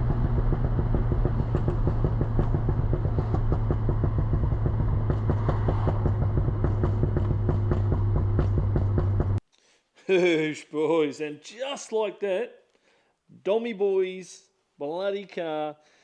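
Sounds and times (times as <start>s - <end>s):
car engine running: 0.0s - 9.4s.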